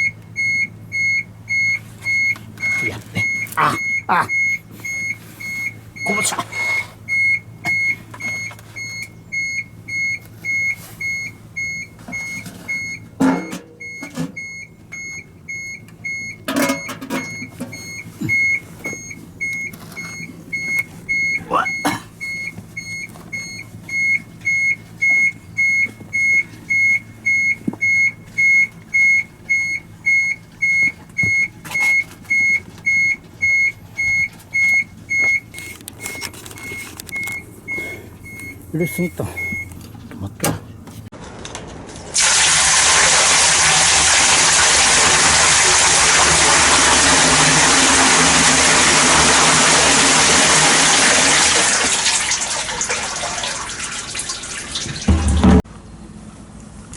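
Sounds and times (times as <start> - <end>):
electronic warning beeper: 0.0 - 39.7
knocks and clanks: 12.0 - 14.5, 16.0 - 19.6, 54.9 - 55.7.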